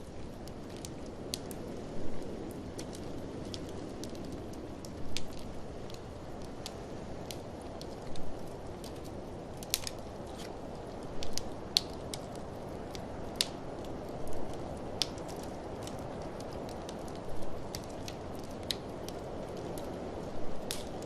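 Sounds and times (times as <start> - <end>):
low rush of wind: 0.0 - 21.0
wood fire crackling: 0.0 - 21.0
sharp pops of fire: 2.3 - 19.9, 20.6 - 21.0.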